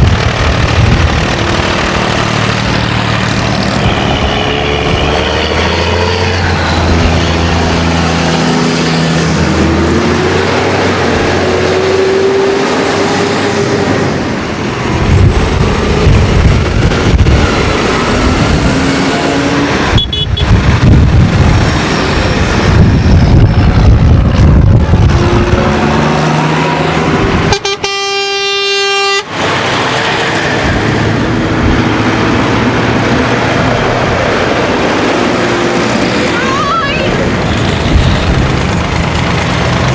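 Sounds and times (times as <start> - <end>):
tractor engines running: 0.0 - 39.9
horn blast: 3.8 - 6.1, 27.5 - 29.4.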